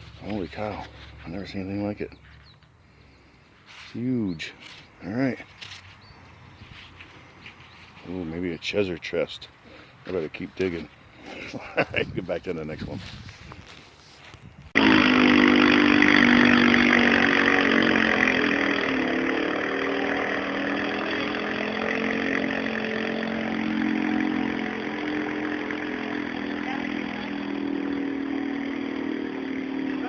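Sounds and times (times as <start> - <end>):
engine running: 0.0 - 8.4, 14.8 - 30.0.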